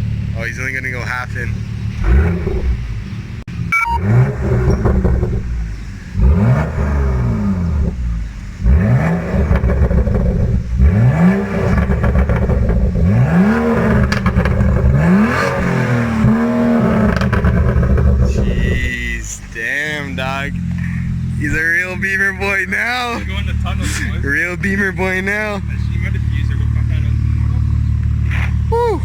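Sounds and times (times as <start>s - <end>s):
car engine revving hard: 0.0s - 28.8s.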